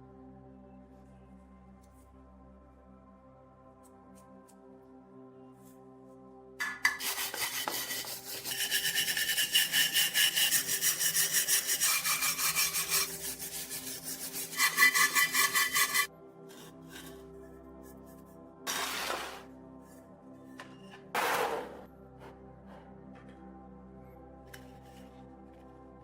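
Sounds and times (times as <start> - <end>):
soft background music: 0.0 - 26.0
hand scraping metal with abrasive: 6.6 - 17.2.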